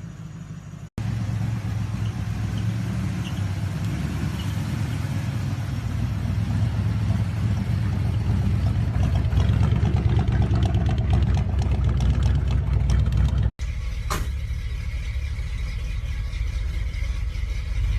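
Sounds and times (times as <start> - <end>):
truck engine running: 0.0 - 17.9.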